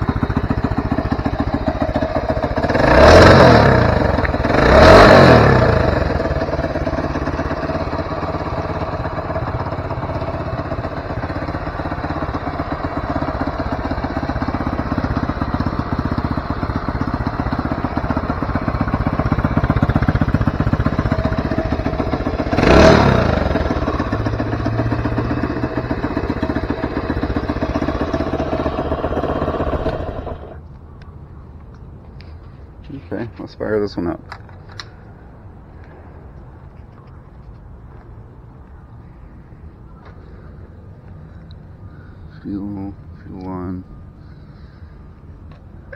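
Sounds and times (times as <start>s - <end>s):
small motorcycle engine running: 0.0s - 30.6s.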